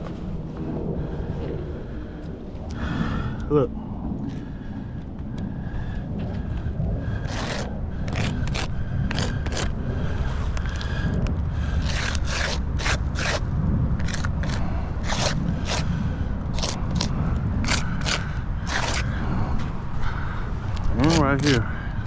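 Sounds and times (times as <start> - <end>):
wind rumble on microphone: 0.0 - 22.0
scraping on asphalt shingles: 6.2 - 22.0.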